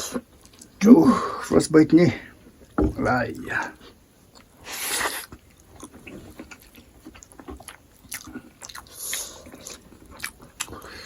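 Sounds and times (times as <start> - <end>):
wet chewing: 4.3 - 11.0.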